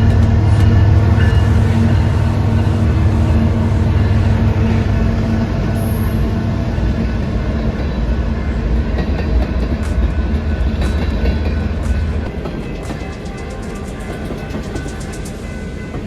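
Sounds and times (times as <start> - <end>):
freight train rumbling on rails: 0.0 - 16.0
train wheels clicking: 0.0 - 16.0.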